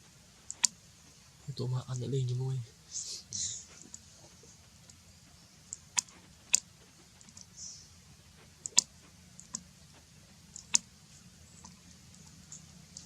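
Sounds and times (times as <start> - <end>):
soft rustle: 0.0 - 13.0
sharp clicks: 0.5 - 0.8, 8.6 - 9.7, 10.5 - 10.9.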